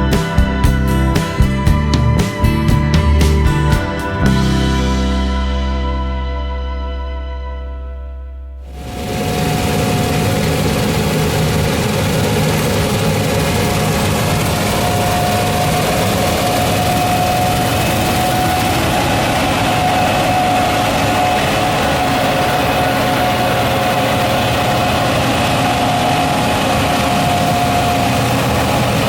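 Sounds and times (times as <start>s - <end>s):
diesel engine drone: 0.0s - 29.0s
steady machinery hum: 8.6s - 29.0s.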